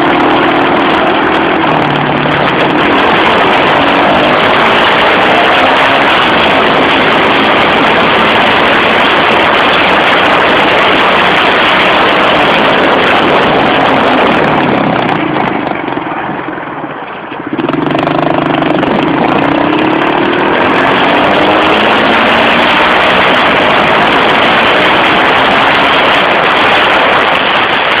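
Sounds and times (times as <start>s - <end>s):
pit bike engine revving: 0.0s - 16.1s, 17.5s - 28.0s.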